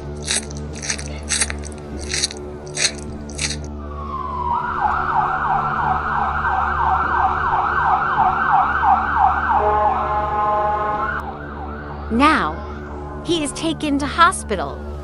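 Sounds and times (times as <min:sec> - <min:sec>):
ambulance siren yelping: 0:03.8 - 0:13.1.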